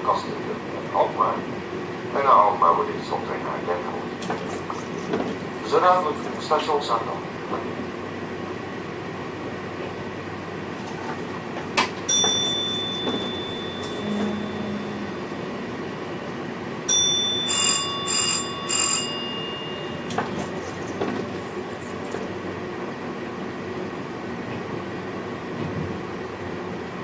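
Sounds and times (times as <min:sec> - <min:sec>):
train rumble in cab: 0:00.0 - 0:27.0
electronic alert chimes: 0:12.2 - 0:15.7.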